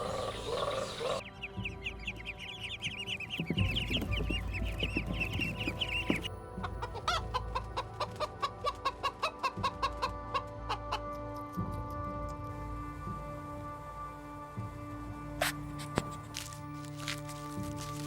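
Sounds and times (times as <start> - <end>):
chickens clucking: 0.0 - 1.2, 2.4 - 11.2
chicks peeping: 0.0 - 1.2, 1.9 - 10.8
faint background music: 0.0 - 18.0.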